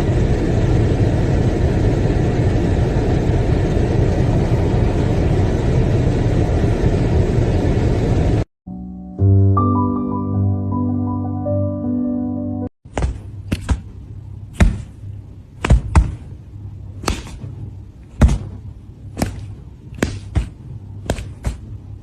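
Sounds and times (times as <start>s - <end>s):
sharp knocks: 12.9s - 13.9s, 14.6s - 15.0s, 15.6s - 16.3s, 17.0s - 21.7s
low steady hum: 12.9s - 22.0s.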